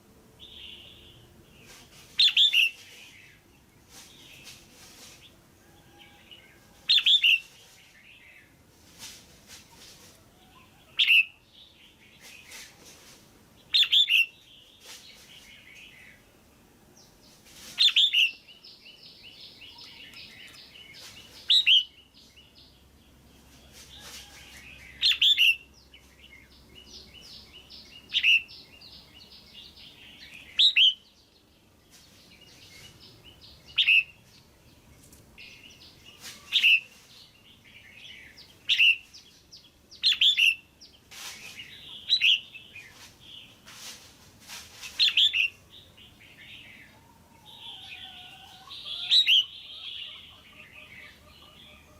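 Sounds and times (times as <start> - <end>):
soft rapid bird chatter: 17.2 - 51.9.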